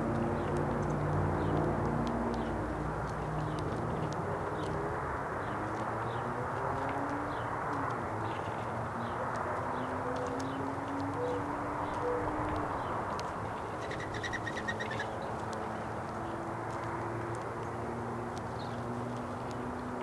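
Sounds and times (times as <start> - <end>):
small birds chirping: 0.0 - 20.0
bird trill: 13.7 - 15.3.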